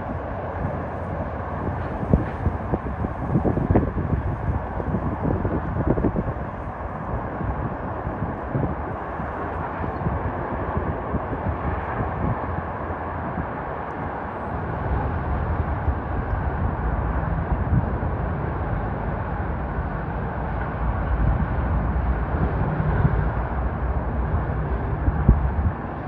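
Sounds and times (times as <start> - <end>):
diesel locomotive rumble: 0.0 - 26.0
train rolling noise: 0.0 - 26.0.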